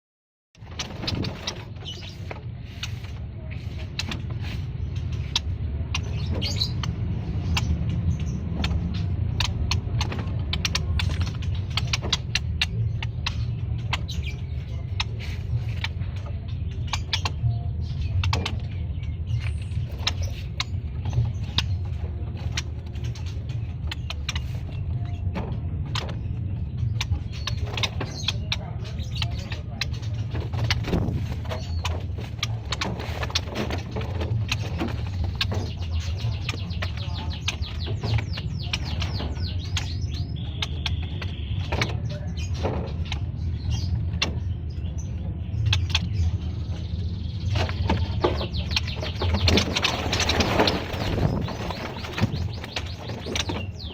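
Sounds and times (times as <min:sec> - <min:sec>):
birds chirping and clicking: 0:00.5 - 0:53.9
steady low rumble: 0:00.6 - 0:53.9.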